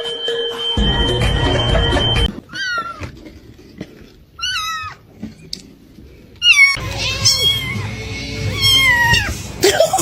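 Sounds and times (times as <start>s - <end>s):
cat meowing: 2.5s - 3.1s, 4.4s - 5.0s, 6.4s - 9.4s.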